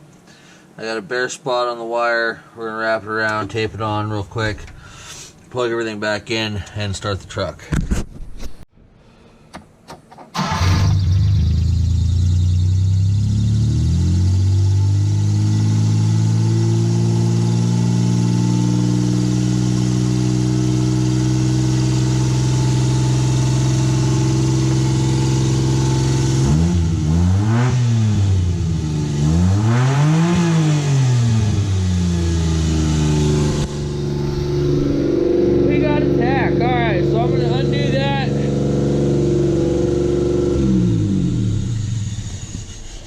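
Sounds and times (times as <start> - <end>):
small truck engine idling and revving: 10.4 - 43.0.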